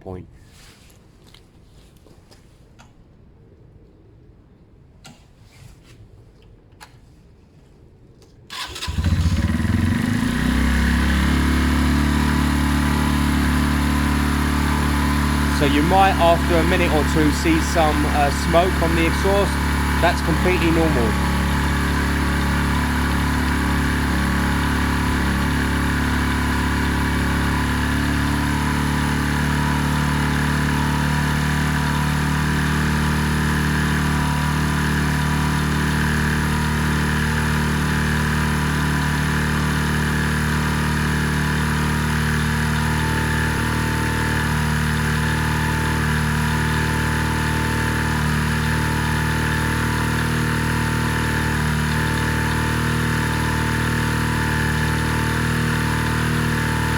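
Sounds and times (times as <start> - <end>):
motorcycle engine idling: 8.6 - 56.9.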